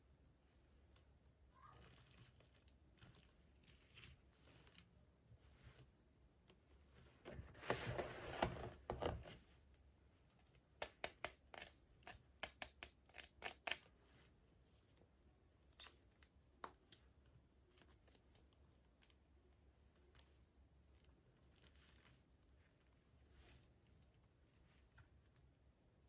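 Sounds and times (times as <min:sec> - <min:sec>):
sharp clicks and snips: 0:10.8 - 0:13.9.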